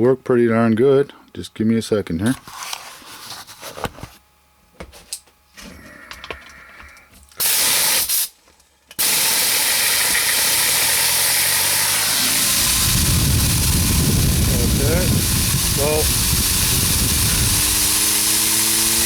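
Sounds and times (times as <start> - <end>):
compressed air hissing: 7.4 - 8.4, 9.0 - 19.0.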